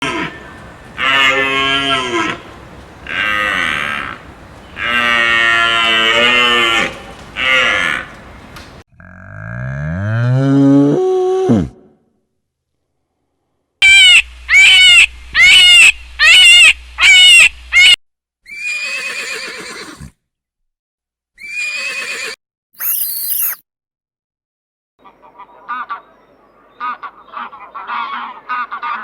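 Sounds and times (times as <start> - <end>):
animal calls: 0.0 - 8.8
short high squeal: 22.8 - 23.6.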